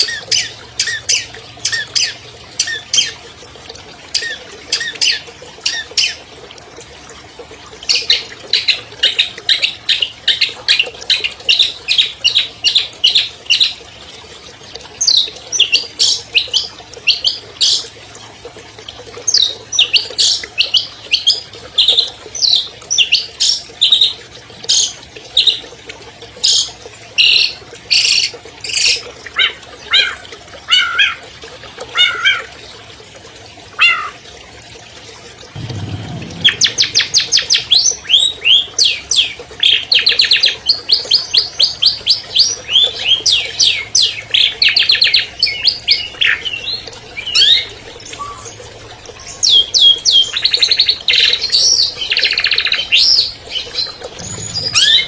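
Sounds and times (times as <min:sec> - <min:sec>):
bird singing sharp chattering notes: 0:35.6 - 0:38.9.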